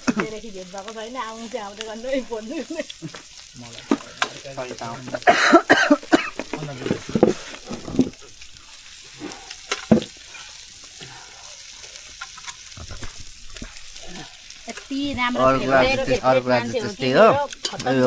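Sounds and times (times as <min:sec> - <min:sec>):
meat sizzling over embers: 0:00.0 - 0:18.0
wood fire crackling: 0:00.0 - 0:18.0.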